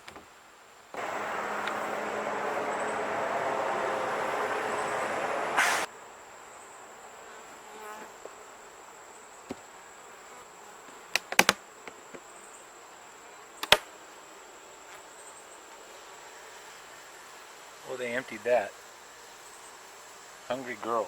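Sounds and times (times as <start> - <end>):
honeybees buzzing: 1.0 - 5.9.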